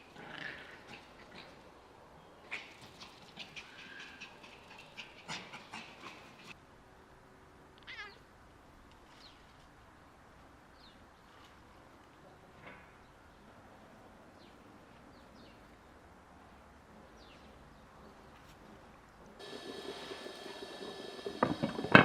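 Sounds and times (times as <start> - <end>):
cat meowing: 7.8 - 8.2.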